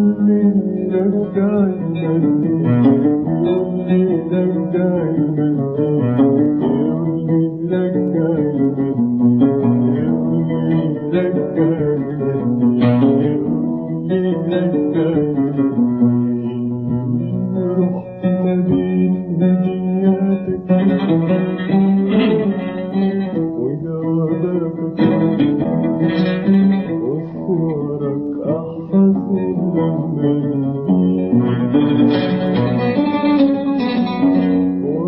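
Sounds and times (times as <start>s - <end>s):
oud playing plucked melody: 0.0s - 35.0s.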